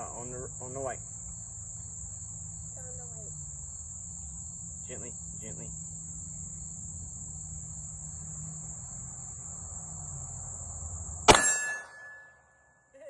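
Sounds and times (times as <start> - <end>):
crickets chirping: 0.0 - 12.3
pistol shot: 11.3 - 12.2
ringing of steel target: 11.3 - 12.8.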